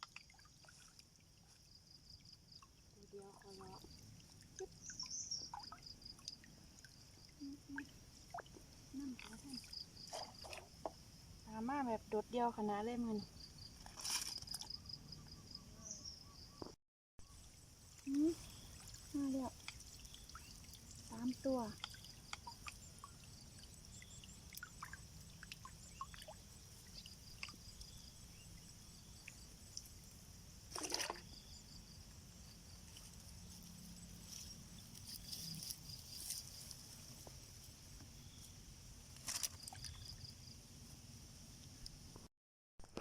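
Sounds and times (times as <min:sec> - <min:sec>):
water splashes: 0:00.0 - 0:01.7, 0:02.5 - 0:09.8, 0:18.1 - 0:27.9, 0:30.7 - 0:31.4
water trickling and sloshing: 0:00.0 - 0:11.1, 0:17.4 - 0:38.5, 0:39.2 - 0:40.3.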